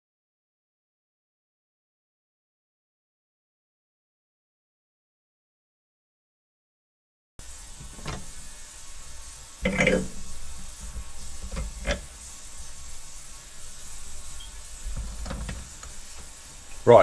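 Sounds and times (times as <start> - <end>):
low steady hum: 7.4 - 17.0.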